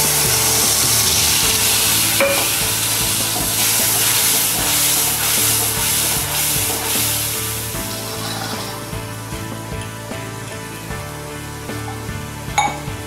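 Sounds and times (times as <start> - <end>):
paste sizzling in hot oil: 0.0 - 10.0
metal spatula scraping pan: 0.2 - 9.0.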